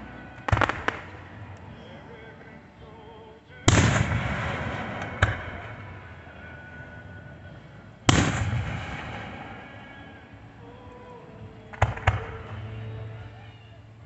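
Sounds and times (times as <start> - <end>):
fireworks bangs with echo: 0.0 - 1.5, 3.6 - 6.8, 8.0 - 10.5, 11.7 - 12.9.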